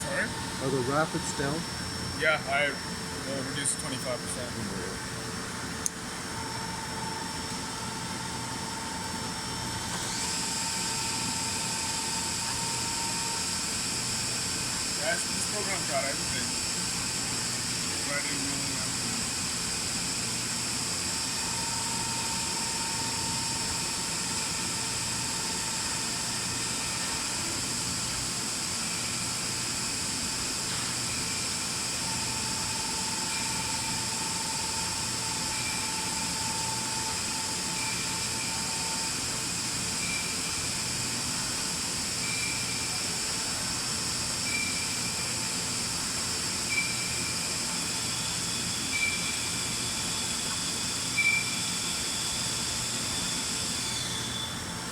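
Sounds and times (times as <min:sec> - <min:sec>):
lathe machine hiss and whine: 0:00.0 - 0:54.9
short machine chirps: 0:44.5 - 0:45.1, 0:46.7 - 0:47.4, 0:48.8 - 0:49.6, 0:51.1 - 0:52.0.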